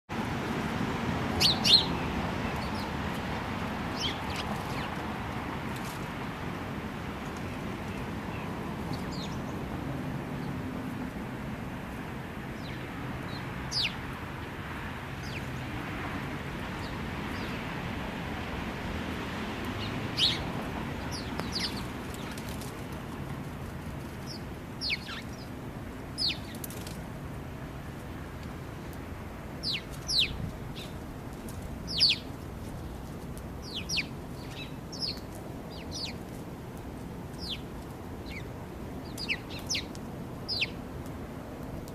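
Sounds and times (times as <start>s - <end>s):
sparrows chirping: 1.3s - 5.1s, 7.0s - 10.6s, 12.0s - 15.9s, 16.5s - 17.8s, 19.5s - 23.1s, 23.7s - 27.0s, 29.5s - 40.8s.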